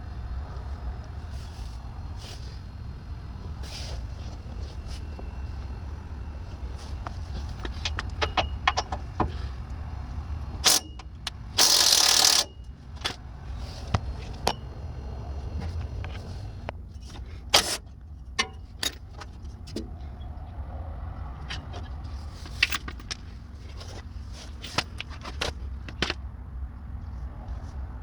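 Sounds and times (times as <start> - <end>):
steady low hum: 0.0 - 28.0
hand tools clicking on metal: 10.6 - 12.5.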